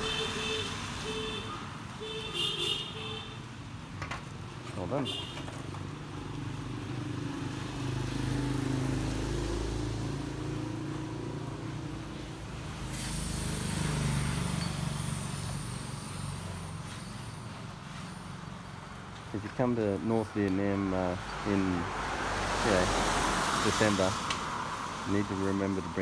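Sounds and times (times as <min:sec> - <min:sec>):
traffic passing by: 0:00.0 - 0:26.0
steady hiss: 0:12.6 - 0:17.3.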